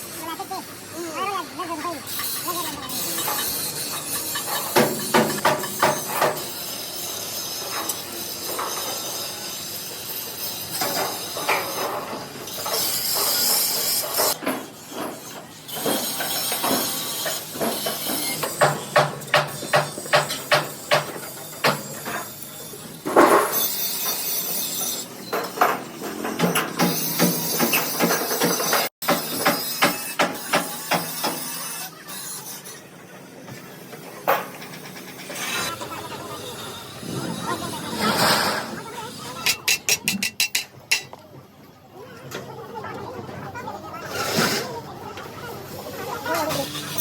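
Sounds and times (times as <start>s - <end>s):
rapid hammer blows on metal: 3.1s - 6.9s, 15.8s - 22.2s, 26.3s - 31.6s.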